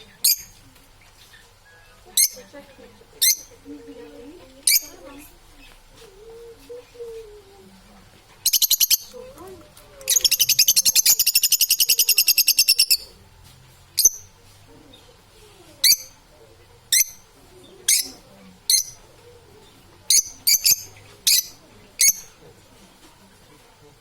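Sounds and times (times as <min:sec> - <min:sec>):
parrot high chirps: 0:00.2 - 0:00.5, 0:02.2 - 0:02.4, 0:03.2 - 0:03.5, 0:04.7 - 0:05.0, 0:08.4 - 0:09.2, 0:10.1 - 0:13.1, 0:15.8 - 0:16.2, 0:16.9 - 0:17.3, 0:17.9 - 0:19.0, 0:20.1 - 0:22.3.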